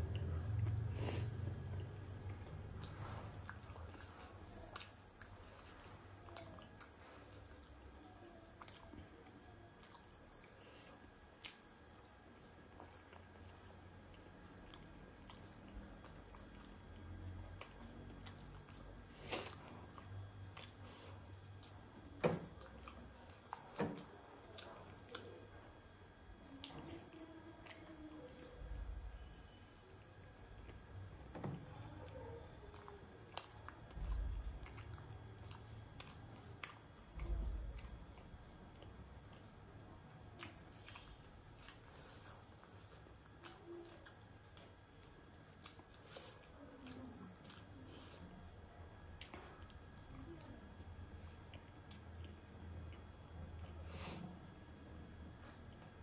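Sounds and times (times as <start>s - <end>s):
wet chewing and biting: 32.6s - 39.5s, 40.2s - 48.2s.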